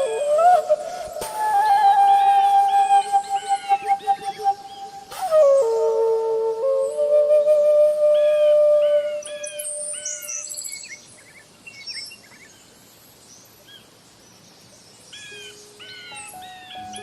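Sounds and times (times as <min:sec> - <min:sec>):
bird-like chirps in music: 0:15.3 - 0:17.0.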